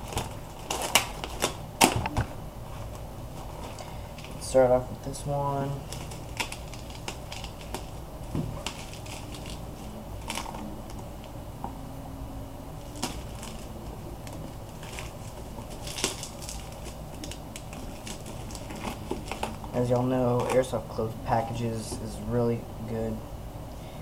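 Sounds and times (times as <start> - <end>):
package being opened by hand: 0.0 - 2.3, 5.8 - 11.0, 12.9 - 20.7.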